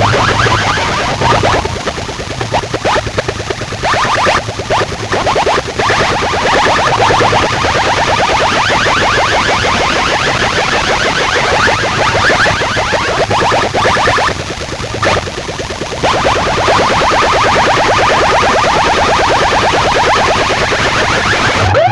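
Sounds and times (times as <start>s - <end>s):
low hum: 0.0s - 8.0s
rapid rising electronic chirps: 0.0s - 21.9s.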